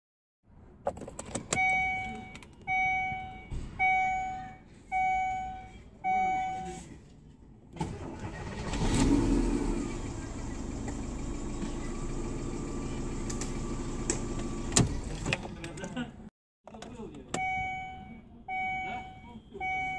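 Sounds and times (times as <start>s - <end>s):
car warning chime: 1.5s - 6.7s, 17.3s - 19.9s
car engine starting and idling: 7.7s - 16.0s.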